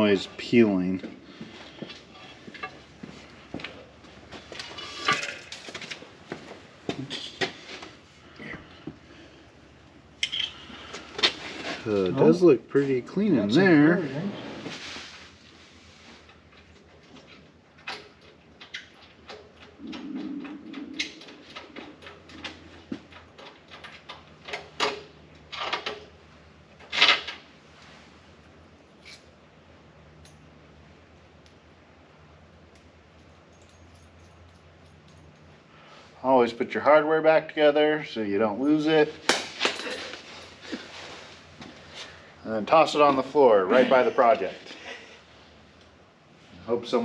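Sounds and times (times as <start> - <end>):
tools clinking and scraping: 1.9 - 2.9, 3.6 - 6.0, 10.2 - 12.0, 29.0 - 29.3, 39.4 - 41.1
metallic rattles and scrapes: 4.3 - 6.2
metal parts clicking and clinking: 32.7 - 35.5.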